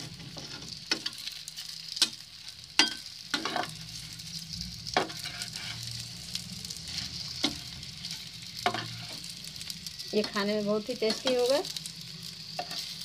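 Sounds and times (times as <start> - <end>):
metal spatula scraping a pan: 0.0 - 4.2, 4.9 - 6.0, 6.8 - 9.4, 12.6 - 13.0
batter sizzling in oil: 0.0 - 13.0.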